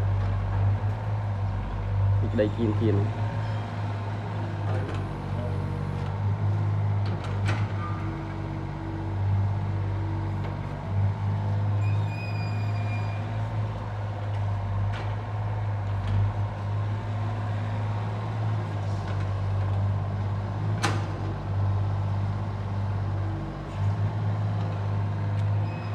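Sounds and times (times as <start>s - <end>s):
heavy machinery engine humming: 0.0s - 11.8s, 13.2s - 25.9s
high squeal: 11.8s - 13.3s.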